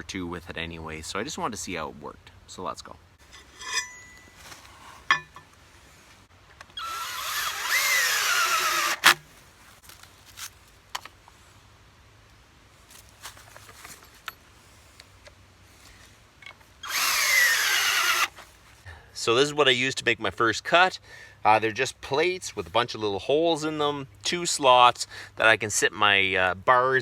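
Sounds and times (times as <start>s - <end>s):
power drill whining: 6.8s - 9.2s, 16.8s - 18.3s.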